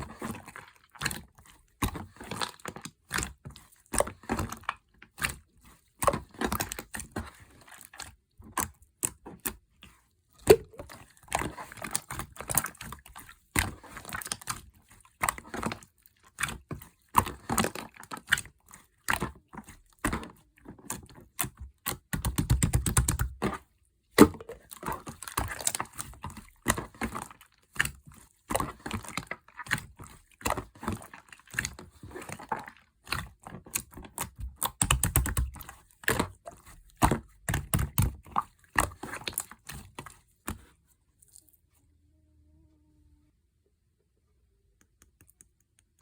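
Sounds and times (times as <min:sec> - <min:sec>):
slime squelching: 0:00.0 - 0:41.7, 0:44.8 - 0:46.0
slime clicking and popping: 0:21.4 - 0:23.3, 0:33.1 - 0:36.2.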